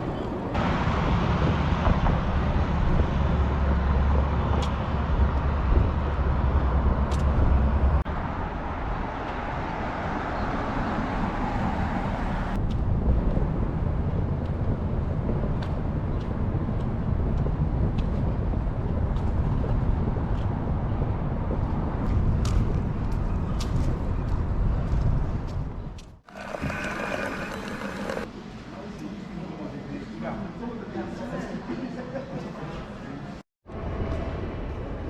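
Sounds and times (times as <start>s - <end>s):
train rolling and rumbling: 0.2s - 8.0s.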